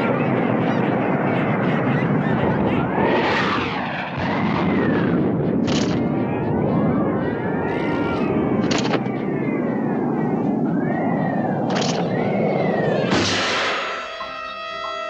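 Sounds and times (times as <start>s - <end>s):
steady rushing noise: 0.0s - 14.2s
rising and falling whistle tones: 6.3s - 15.0s.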